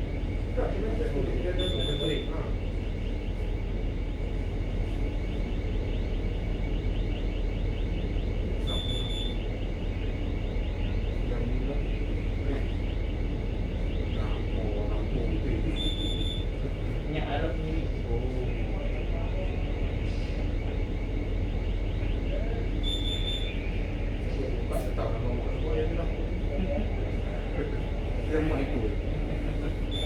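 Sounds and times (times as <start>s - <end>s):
ship engines humming: 0.0s - 30.0s
high-pitched electronic beep: 8.7s - 9.4s, 22.8s - 23.6s.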